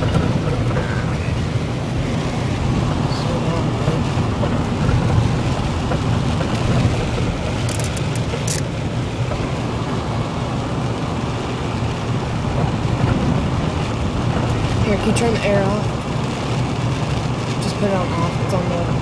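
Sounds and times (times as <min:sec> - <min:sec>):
road and engine noise in car: 0:00.0 - 0:19.0
short clicks: 0:07.7 - 0:08.6.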